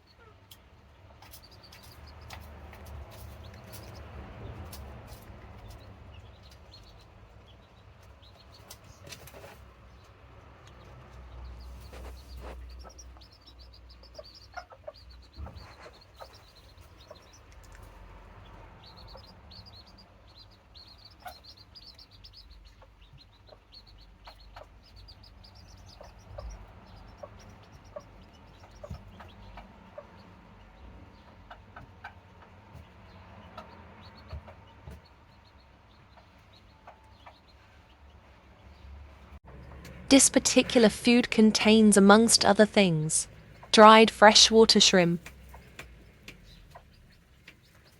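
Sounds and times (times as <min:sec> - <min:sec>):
chicks chirping: 0:00.0 - 0:47.9
hen clucking: 0:11.4 - 0:17.6.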